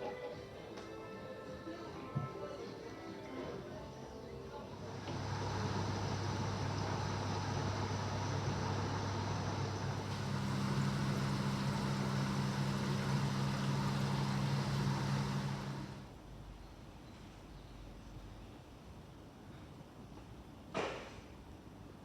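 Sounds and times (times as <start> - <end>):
machine hum: 4.8 - 16.1.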